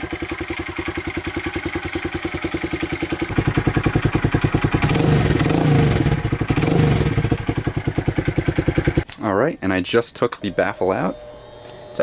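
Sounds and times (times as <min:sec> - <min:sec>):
motorcycle engine idling: 0:00.0 - 0:09.1
engine throttle rev: 0:03.2 - 0:09.0.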